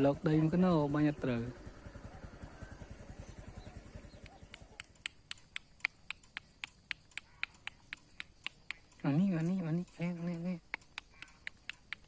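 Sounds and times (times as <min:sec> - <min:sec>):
faint fast low pulsing: 0:00.0 - 0:12.0
sharp clicks: 0:03.9 - 0:12.0.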